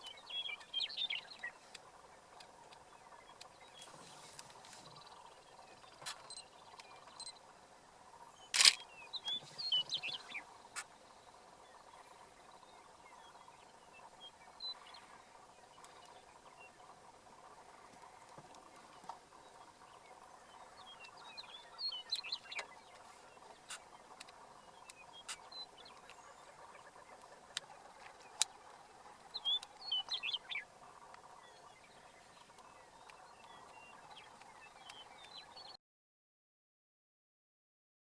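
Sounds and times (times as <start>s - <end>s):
birds gobbling chorus: 0.0s - 35.7s
sharp clicks: 8.6s - 8.8s.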